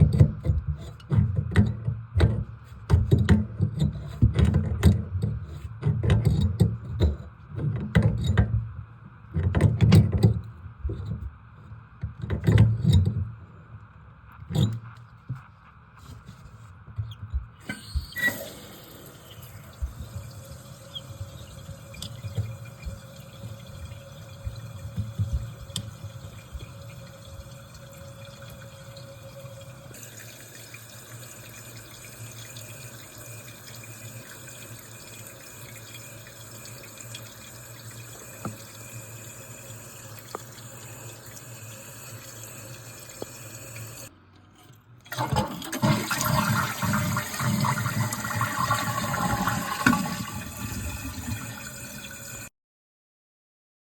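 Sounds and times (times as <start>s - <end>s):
toilet water running: 0.0s - 8.6s, 17.5s - 44.1s, 45.1s - 52.5s
toilet flushing: 17.6s - 44.1s, 45.1s - 52.5s.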